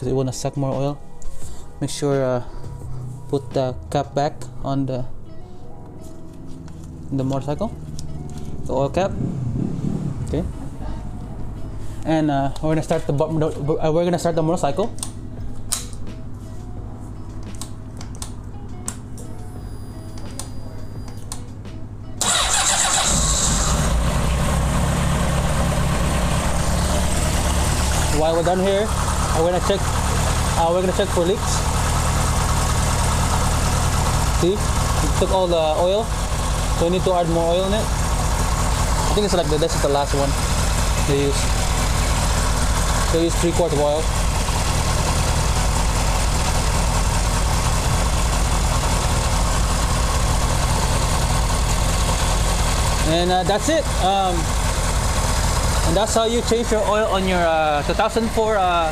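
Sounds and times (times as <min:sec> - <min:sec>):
motorcycle engine starting and idling: 0:22.2 - 0:58.9.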